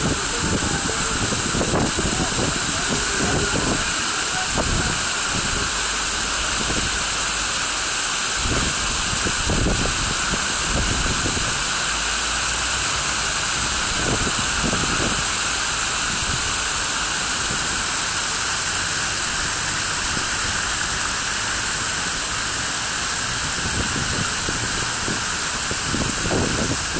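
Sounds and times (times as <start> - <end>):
low rumbles: 0.0 - 7.8
fountain water rushing: 0.0 - 26.9.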